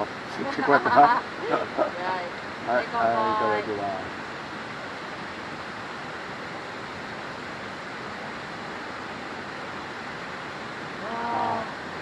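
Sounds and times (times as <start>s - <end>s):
steady rushing background noise: 0.0s - 7.0s.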